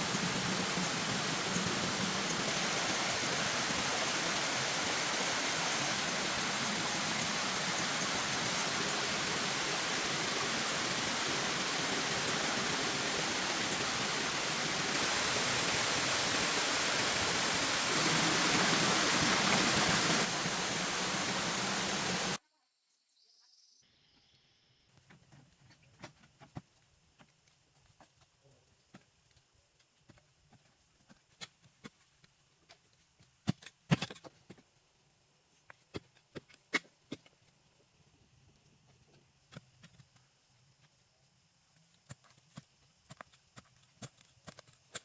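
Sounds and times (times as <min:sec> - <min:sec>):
rushing water: 0:00.0 - 0:22.4.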